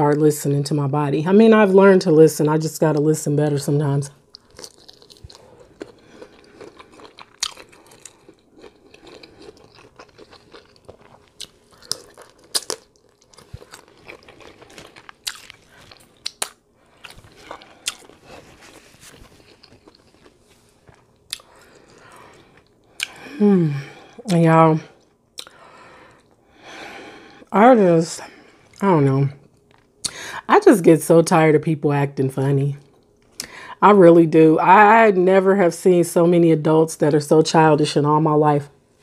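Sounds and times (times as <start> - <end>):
person chewing with wet smacks: 4.3 - 23.2.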